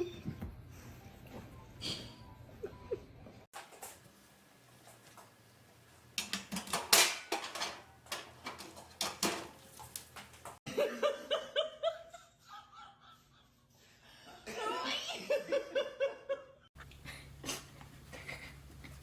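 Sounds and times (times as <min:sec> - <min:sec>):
clattering knocks and rattles: 0:03.6 - 0:10.7.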